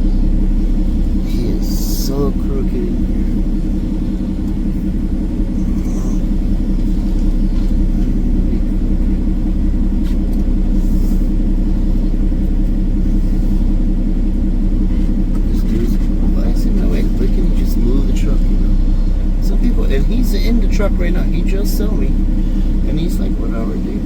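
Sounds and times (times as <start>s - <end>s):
truck diesel engine rumbling: 0.0s - 24.0s.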